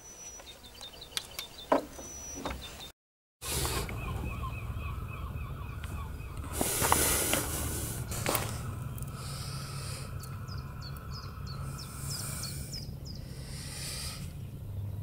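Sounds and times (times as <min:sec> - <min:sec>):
songbird chirping: 0:00.0 - 0:15.0
low rumble: 0:03.9 - 0:15.0.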